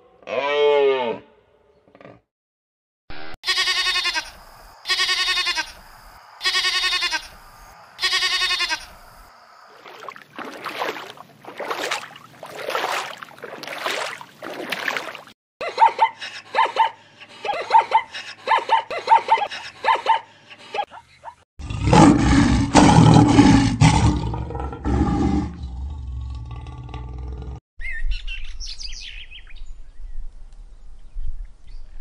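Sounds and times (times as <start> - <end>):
drawn-out bleats: 3.4 - 5.8, 6.4 - 7.4, 8.0 - 9.0.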